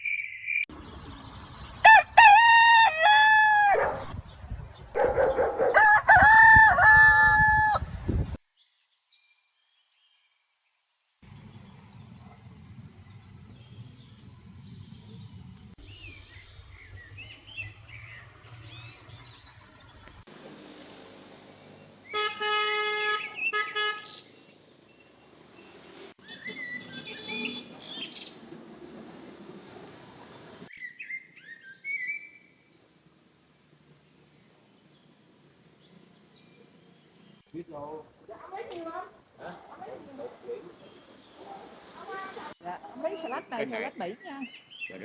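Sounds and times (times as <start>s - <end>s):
rooster crowing: 1.8s - 4.0s, 5.5s - 8.0s
small birds chirping: 8.2s - 29.0s, 30.6s - 45.0s.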